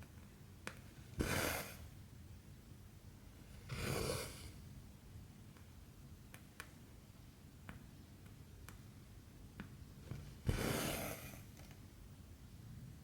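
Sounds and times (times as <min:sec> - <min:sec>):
thread rasping swish: 0:10.4 - 0:11.4.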